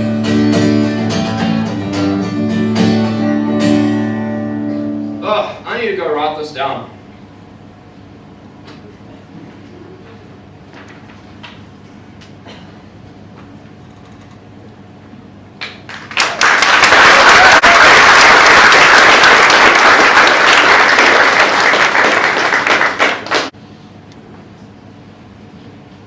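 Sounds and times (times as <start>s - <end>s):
audience applause: 15.6s - 23.5s.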